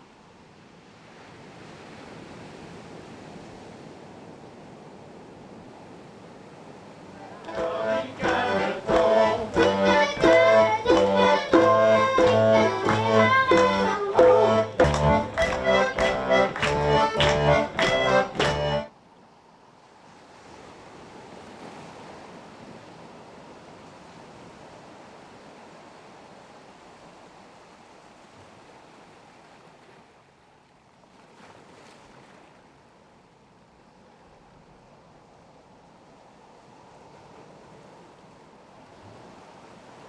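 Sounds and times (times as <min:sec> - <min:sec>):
lively accordion music: 0:07.2 - 0:18.9.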